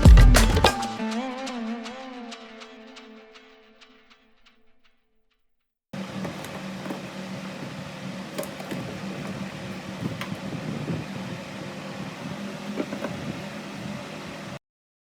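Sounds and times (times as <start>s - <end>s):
steady mechanical hum: 6.0s - 14.6s.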